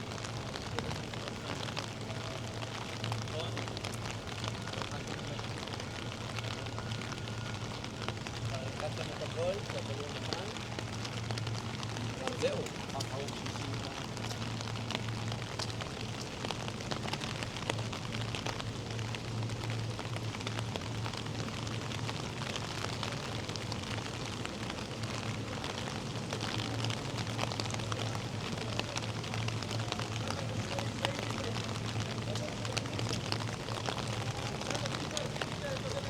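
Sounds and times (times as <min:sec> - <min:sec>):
rain falling: 0:00.0 - 0:36.0.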